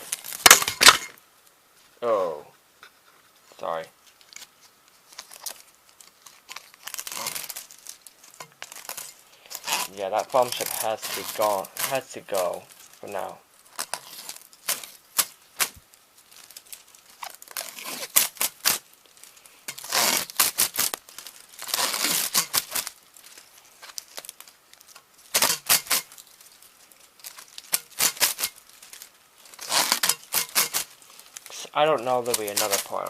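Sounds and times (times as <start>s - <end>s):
foam strip tearing and crackling: 0.0s - 1.2s, 4.0s - 33.0s.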